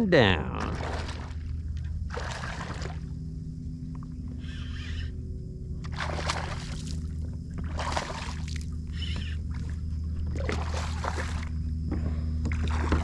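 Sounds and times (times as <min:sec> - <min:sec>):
steady low hum: 0:00.0 - 0:13.0
water sloshing around kayak: 0:00.6 - 0:03.3, 0:05.7 - 0:13.0.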